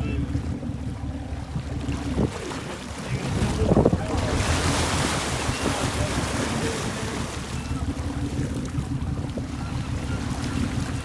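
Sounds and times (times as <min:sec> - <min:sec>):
boat motor rumbling: 0:00.0 - 0:11.0
sea water washing: 0:00.0 - 0:11.0
wind on microphone: 0:00.2 - 0:07.2.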